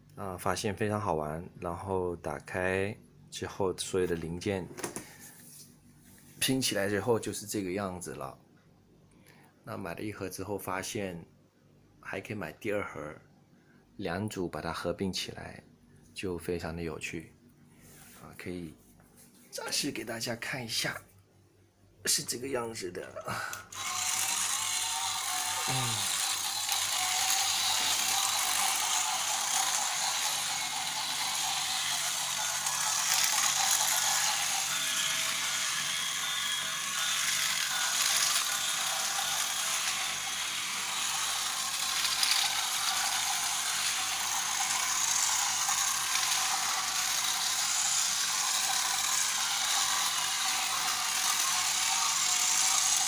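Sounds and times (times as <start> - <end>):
toy train motor whirring: 23.4 - 53.0.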